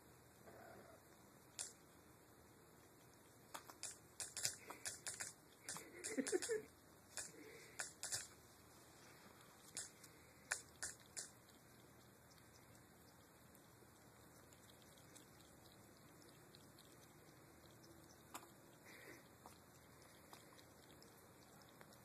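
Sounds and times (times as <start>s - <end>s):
cat lapping water: 9.4s - 22.0s.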